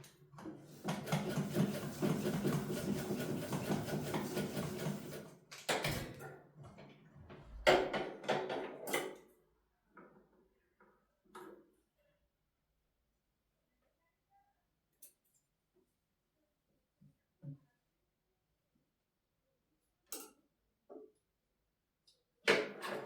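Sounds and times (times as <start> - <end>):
sewing machine stitching: 0.7 - 5.3.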